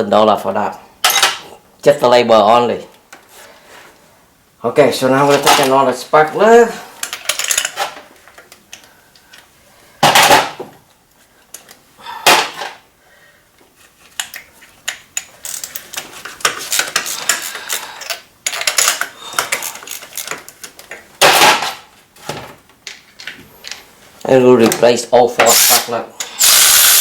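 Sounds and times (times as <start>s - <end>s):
metal tools clicking and rattling: 1.0s - 1.4s, 7.0s - 8.0s, 14.2s - 20.8s.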